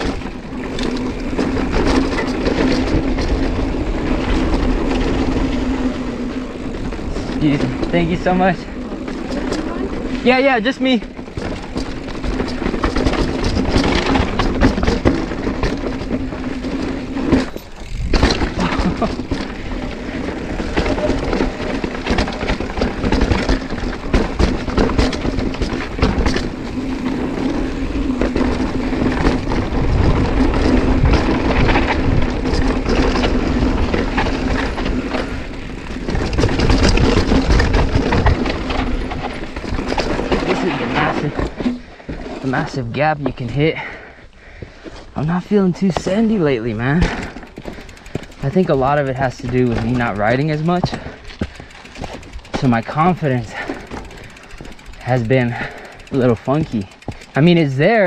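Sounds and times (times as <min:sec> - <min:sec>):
bike tyres rumbling on dirt: 0:00.0 - 0:58.0
bike chain slapping frame: 0:07.1 - 0:41.8, 0:46.4 - 0:58.0.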